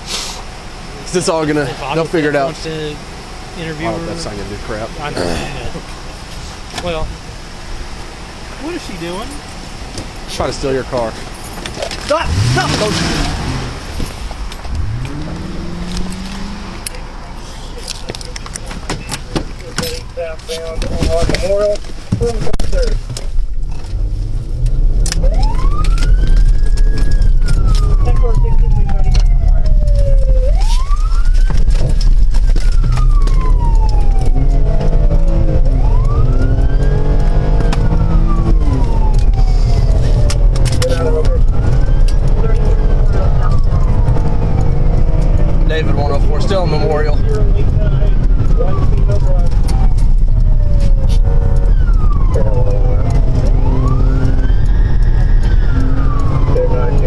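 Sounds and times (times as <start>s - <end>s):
car engine and road noise: 0.0s - 57.0s
police siren wailing: 12.3s - 17.4s, 25.1s - 57.0s.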